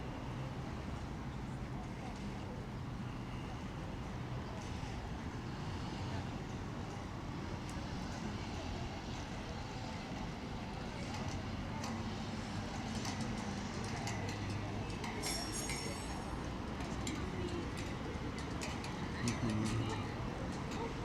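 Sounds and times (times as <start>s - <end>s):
traffic rumble: 0.0s - 21.0s
murmuring voices: 4.4s - 21.0s.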